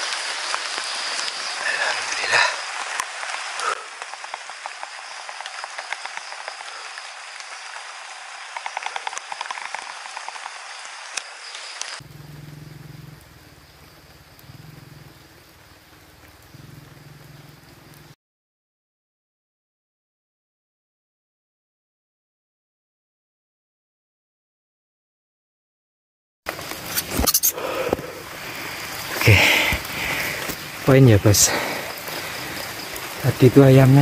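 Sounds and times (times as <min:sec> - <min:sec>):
rain on leaves: 0:00.0 - 0:18.2, 0:26.5 - 0:34.0
low hum: 0:12.0 - 0:18.0.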